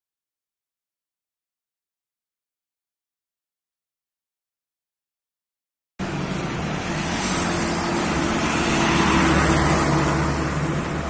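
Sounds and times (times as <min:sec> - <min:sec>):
road noise: 0:06.0 - 0:11.0.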